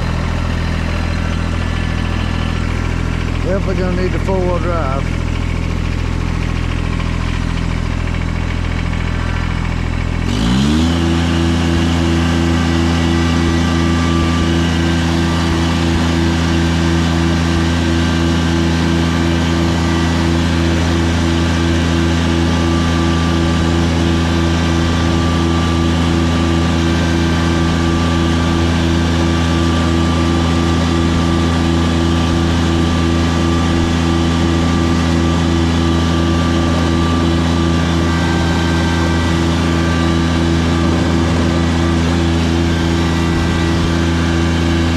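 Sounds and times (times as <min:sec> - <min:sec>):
tractor engine revving: 0:00.0 - 0:44.9.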